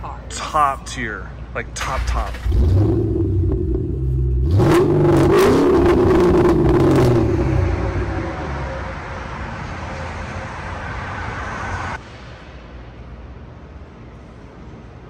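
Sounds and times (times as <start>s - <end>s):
sharp exhaust crackles: 1.8s - 9.3s
car engine revving: 1.9s - 11.9s.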